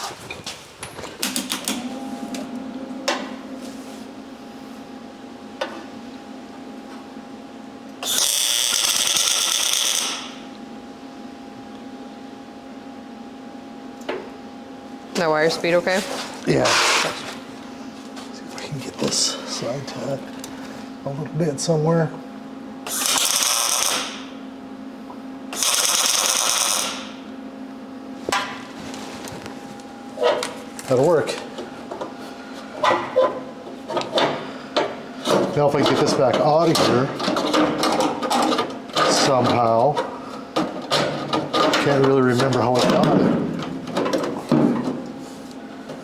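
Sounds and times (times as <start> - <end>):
steady hum: 0.0 - 8.2, 10.1 - 46.0
welding arc crackling: 8.0 - 10.4, 22.9 - 24.3, 25.6 - 27.2.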